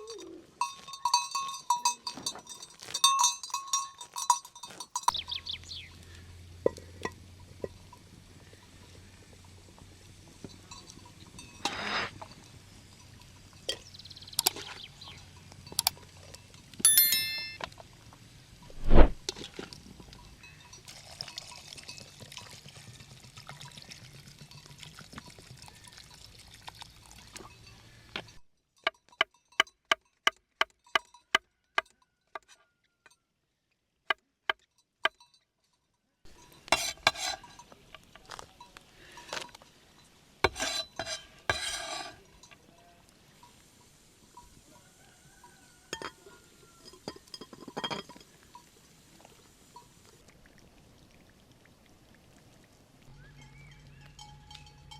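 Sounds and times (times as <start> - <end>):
metal and glass clinks: 0.0 - 5.5, 10.3 - 13.8, 15.4 - 17.8, 20.1 - 22.6, 34.8 - 43.0, 45.9 - 48.7, 53.4 - 54.9.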